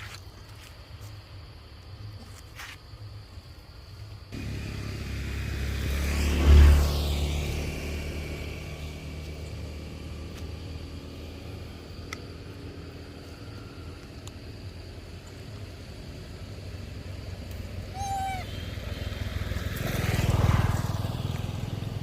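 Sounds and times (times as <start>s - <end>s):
vehicle driving past: 4.4s - 14.0s, 15.7s - 22.0s.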